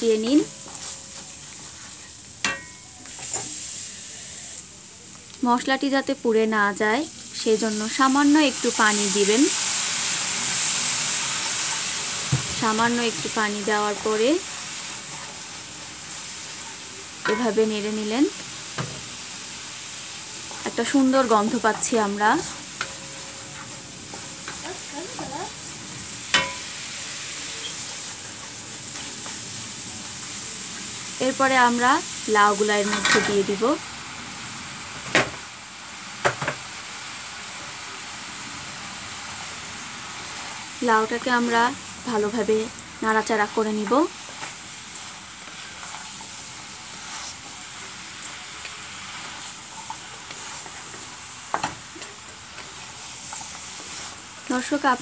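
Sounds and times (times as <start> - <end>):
food sizzling in oil: 0.0 - 55.0
vegetables frying in a wok: 0.0 - 55.0
wooden spatula stirring: 0.4 - 2.0, 10.4 - 17.5, 20.2 - 26.6, 43.8 - 54.6.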